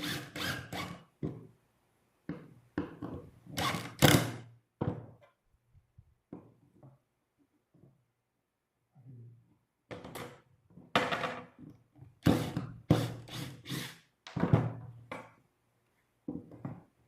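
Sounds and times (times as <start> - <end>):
wooden knocks and thunks: 4.8 - 5.3, 14.3 - 15.4.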